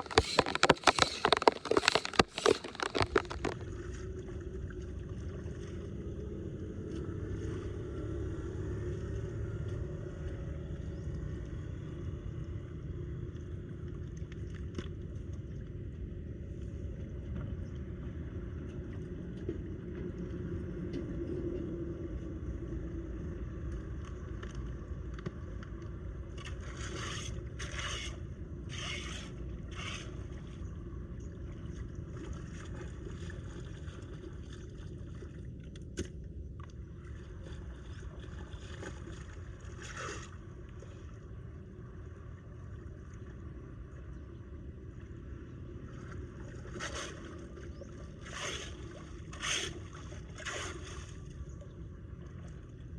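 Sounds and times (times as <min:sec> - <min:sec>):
short scraping sounds: 0:00.0 - 0:03.6, 0:26.8 - 0:30.4, 0:48.2 - 0:51.1
floodwater rushing into drain: 0:00.0 - 0:04.2.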